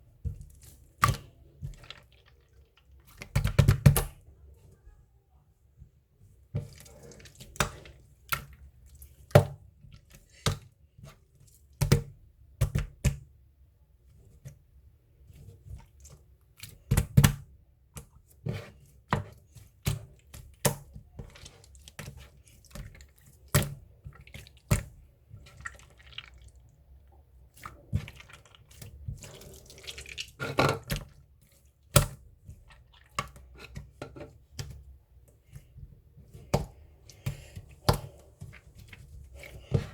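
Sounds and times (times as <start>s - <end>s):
slime squishing: 0.1s - 4.4s, 6.4s - 11.2s, 18.2s - 39.9s.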